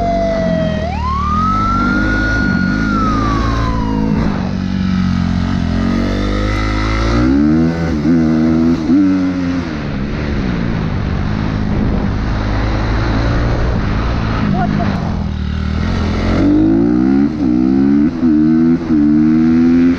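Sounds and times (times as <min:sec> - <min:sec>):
siren winding down: 0:00.0 - 0:04.8
vehicle engine revving: 0:00.0 - 0:19.9.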